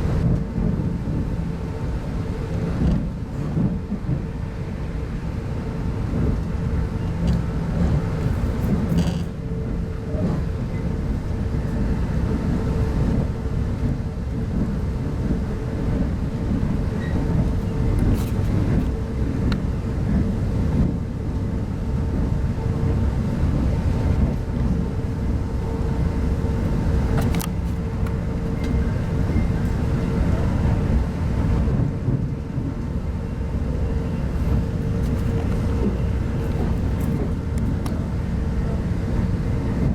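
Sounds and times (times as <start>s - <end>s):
train wheels rumbling on track: 0.0s - 39.9s.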